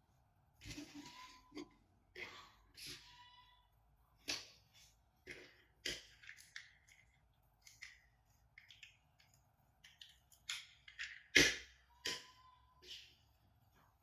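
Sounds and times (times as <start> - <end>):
plastic toys clicking and tapping: 5.2 - 12.5.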